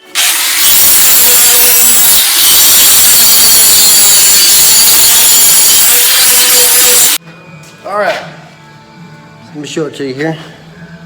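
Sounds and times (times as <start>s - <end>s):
angle grinder grinding metal: 0.0s - 7.2s.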